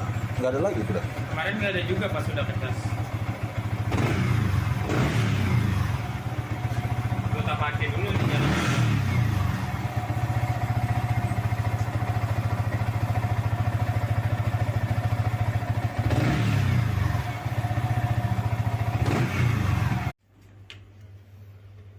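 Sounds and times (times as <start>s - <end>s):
motorcycle engine idling: 0.0s - 20.2s
engine revving blips: 3.8s - 6.1s, 8.0s - 9.8s, 16.0s - 17.4s, 19.0s - 20.1s.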